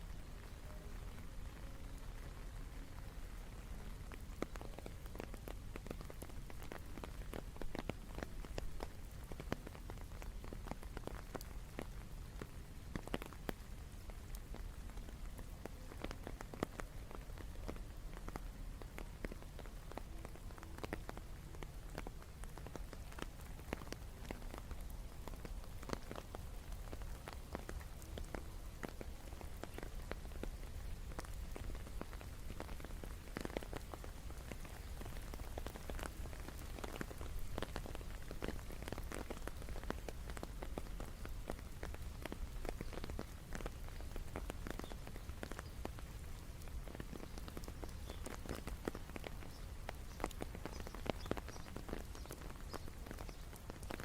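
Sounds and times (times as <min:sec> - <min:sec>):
raindrops ticking: 0:00.0 - 0:54.0
steady rain: 0:00.0 - 0:54.0.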